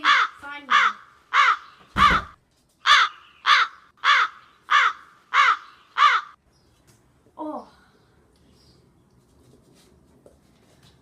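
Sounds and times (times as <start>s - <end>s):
crow cawing: 0.0s - 6.4s.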